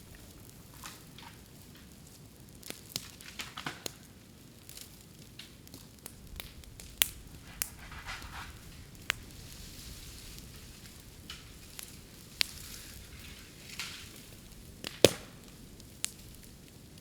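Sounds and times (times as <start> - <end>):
bamboo popping and crackling in fire: 0.0 - 17.0
fire hissing: 5.9 - 17.0.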